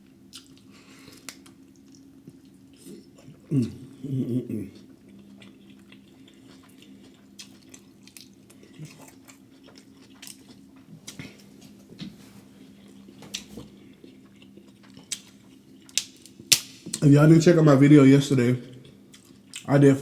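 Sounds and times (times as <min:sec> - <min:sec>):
steady low hum: 0:00.0 - 0:20.0
person chewing and biting: 0:04.8 - 0:11.8, 0:12.6 - 0:16.7.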